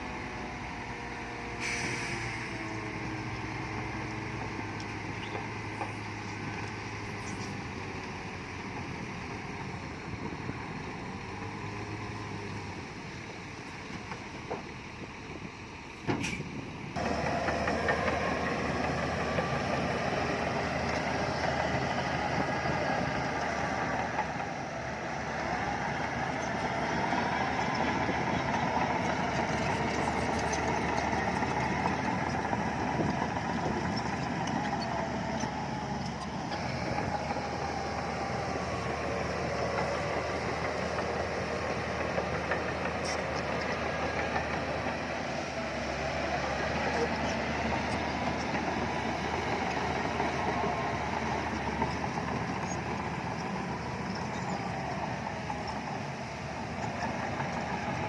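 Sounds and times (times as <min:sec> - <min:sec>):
diesel machinery running: 0:00.0 - 0:58.0.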